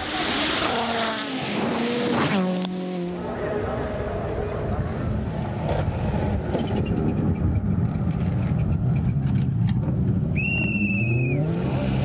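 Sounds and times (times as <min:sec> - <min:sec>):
loud high whistle-like tone: 0:10.4 - 0:11.5.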